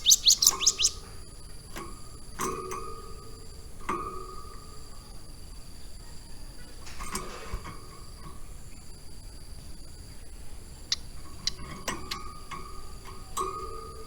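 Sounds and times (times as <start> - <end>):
high-pitched insect buzz: 0.0 - 1.1
bird chip notes: 0.0 - 1.2.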